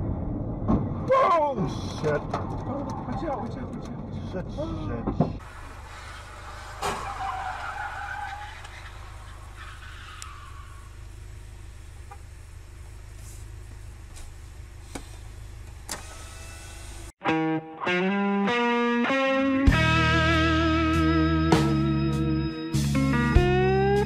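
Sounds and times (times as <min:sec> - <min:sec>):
car engine idling: 0:00.0 - 0:17.1.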